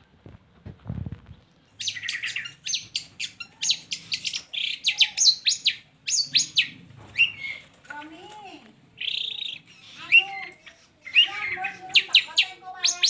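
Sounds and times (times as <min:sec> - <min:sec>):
bird singing chattering notes: 0:01.7 - 0:07.6, 0:09.0 - 0:13.0.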